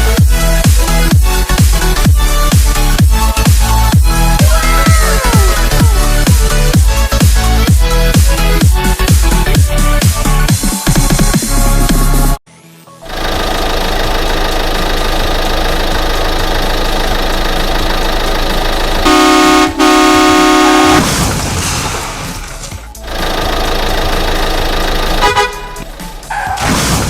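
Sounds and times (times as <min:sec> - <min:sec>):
steady engine noise: 0:00.0 - 0:10.5, 0:13.0 - 0:26.6
vehicle horn honking: 0:19.0 - 0:21.2, 0:25.2 - 0:26.1.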